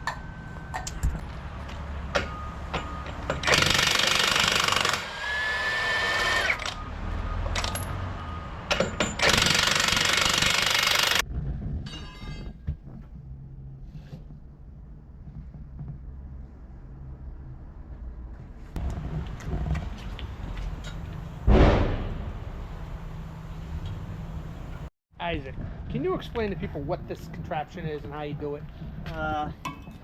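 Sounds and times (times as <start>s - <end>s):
pneumatic impact wrench hammering: 2.2s - 6.8s, 8.7s - 11.2s.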